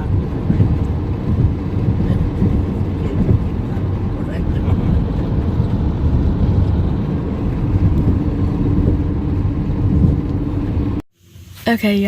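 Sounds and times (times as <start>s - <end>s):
car driving rumble: 0.0s - 11.1s.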